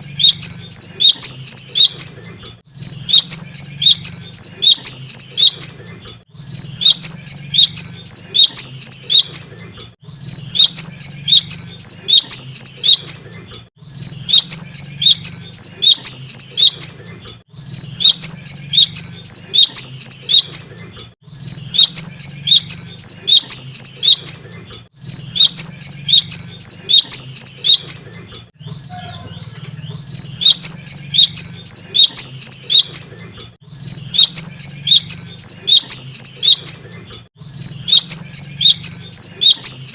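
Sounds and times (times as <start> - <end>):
bird rapid high chirping: 0.0 - 39.9.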